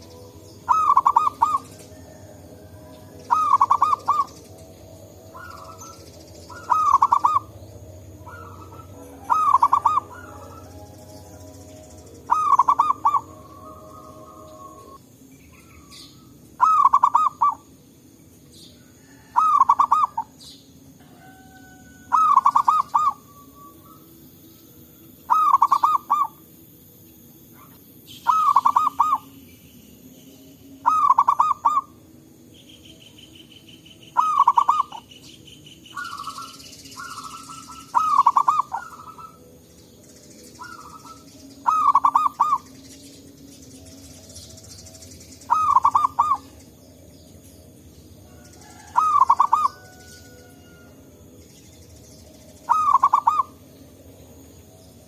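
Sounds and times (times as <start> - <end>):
dove cooing: 0.0 - 17.7, 18.8 - 20.4, 21.0 - 24.2, 25.2 - 26.5, 27.5 - 29.4, 30.8 - 32.0, 34.2 - 35.1, 35.9 - 39.6, 40.6 - 42.8, 43.9 - 46.8, 48.3 - 51.0, 52.6 - 53.8.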